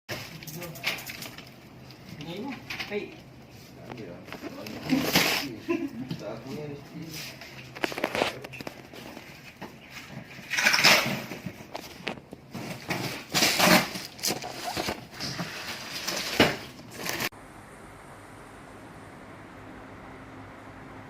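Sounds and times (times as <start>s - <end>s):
rustling and knocking handling noises: 7.0s - 17.3s.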